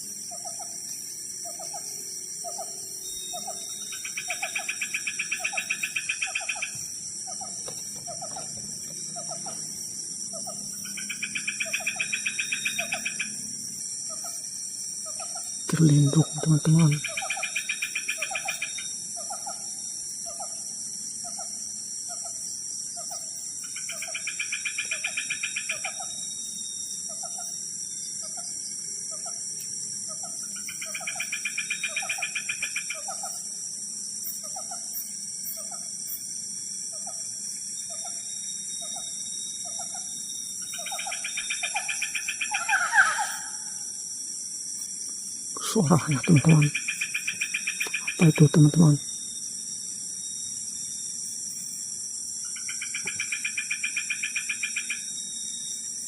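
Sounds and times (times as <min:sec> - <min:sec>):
high insect drone: 0:00.0 - 0:56.0
falling animal call: 0:42.5 - 0:43.7.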